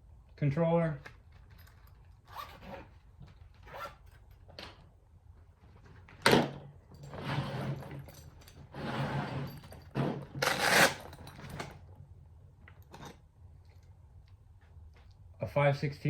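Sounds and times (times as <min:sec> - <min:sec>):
rustling of tool bag: 0:01.1 - 0:04.8, 0:06.9 - 0:11.9.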